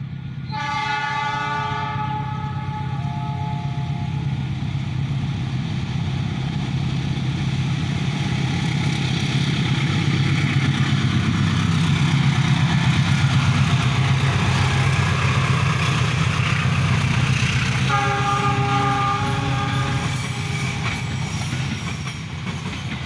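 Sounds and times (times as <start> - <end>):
diesel locomotive engine drone: 0.0 - 23.0
train rumble: 0.0 - 23.0
train horn blast: 0.5 - 4.6, 17.8 - 20.8.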